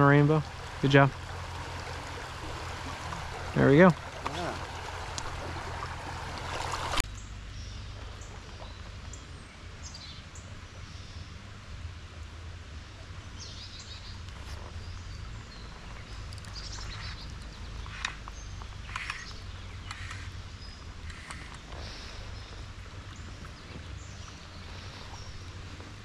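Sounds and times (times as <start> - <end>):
stream water rushing: 0.0 - 7.0
steady low rumble: 0.0 - 9.8
small birds chirping: 13.4 - 26.0.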